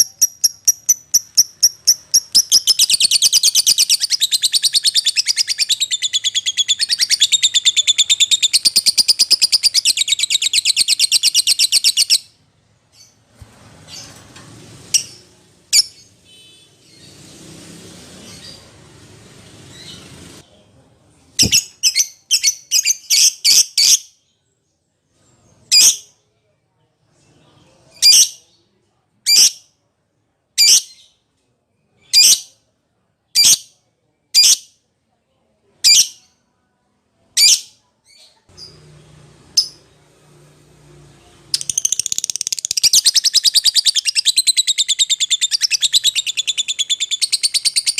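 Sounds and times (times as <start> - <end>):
sharp high bird chirps: 0.0 - 13.2, 41.6 - 47.9.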